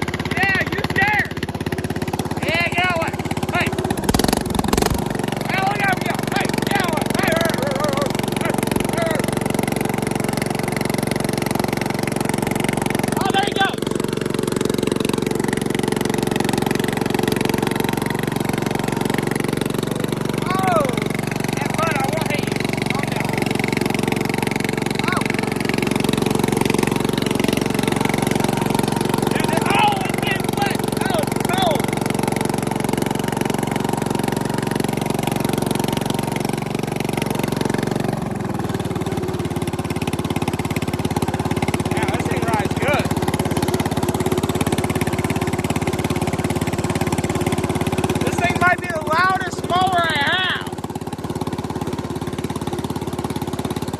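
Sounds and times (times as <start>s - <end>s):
small tractor engine running: 0.0s - 53.9s.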